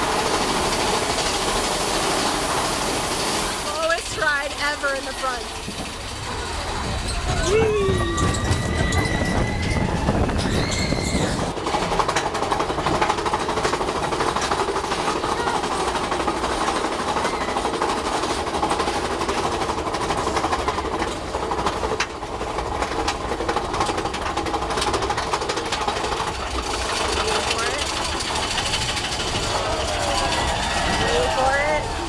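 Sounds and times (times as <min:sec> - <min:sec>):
roller coaster rattling on track: 0:00.0 - 0:32.0
high voice crying out: 0:07.3 - 0:08.8.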